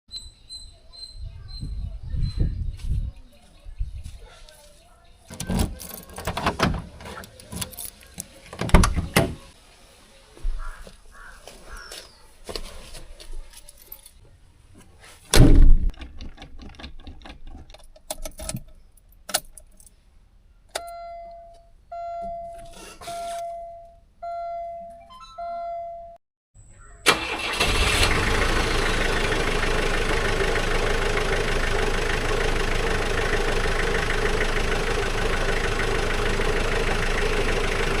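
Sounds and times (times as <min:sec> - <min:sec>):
loud thump: 0:15.3 - 0:15.9
car engine starting and idling: 0:27.0 - 0:38.0.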